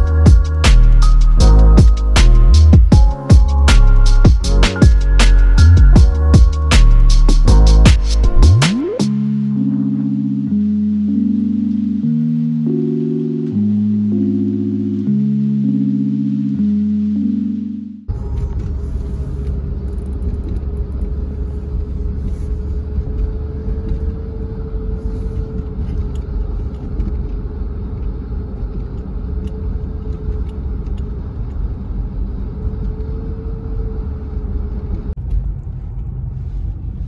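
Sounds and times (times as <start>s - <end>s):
car road and engine rumble: 0.0s - 37.0s
faint wavering hum: 7.7s - 26.8s.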